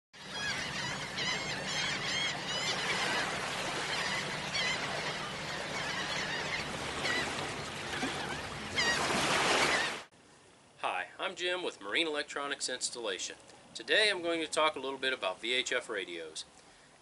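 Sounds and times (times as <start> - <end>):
birds calling: 0.2 - 10.1.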